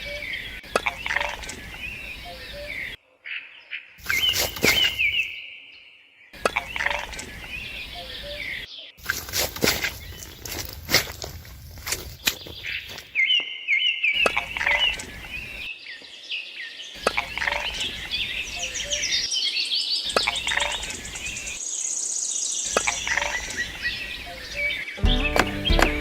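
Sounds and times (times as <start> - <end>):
birds chirping and trilling: 0.0 - 26.0
music with a beat: 25.0 - 26.0.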